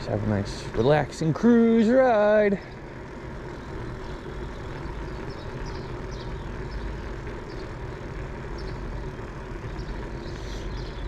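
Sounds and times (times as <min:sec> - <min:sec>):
bicycle tyres rolling: 0:00.0 - 0:11.0
wind: 0:00.0 - 0:11.0
high bird chirps: 0:03.9 - 0:11.0.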